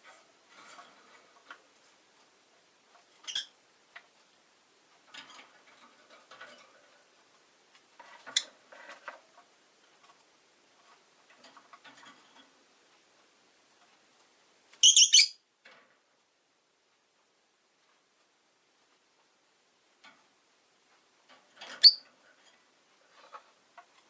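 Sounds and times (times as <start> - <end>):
faint ticking and shuffling: 0.0 - 24.0
lovebirds chirping: 14.8 - 15.4, 21.8 - 22.0.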